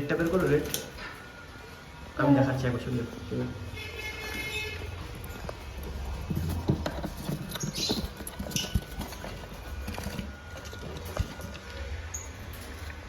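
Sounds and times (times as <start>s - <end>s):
high-pitched bird calls: 7.4s - 9.0s.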